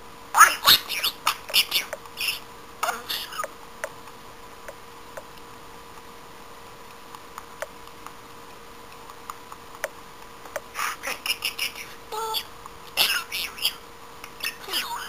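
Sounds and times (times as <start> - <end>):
faint steady hum: 0.0 - 15.0
budgerigar chirping and chattering: 0.4 - 3.5, 10.8 - 12.4, 13.0 - 13.8, 14.4 - 15.0.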